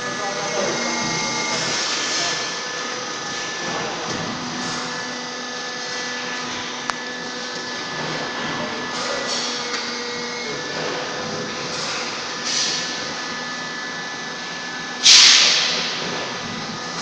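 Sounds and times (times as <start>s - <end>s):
machinery humming tones: 0.0s - 17.0s
machinery hiss: 15.0s - 16.2s.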